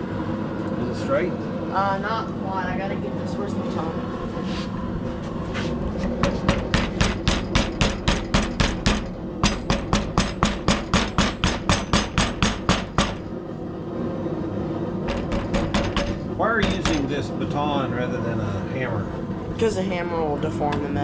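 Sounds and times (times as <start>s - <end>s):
baton striking hot steel: 6.2s - 13.3s, 15.0s - 17.1s.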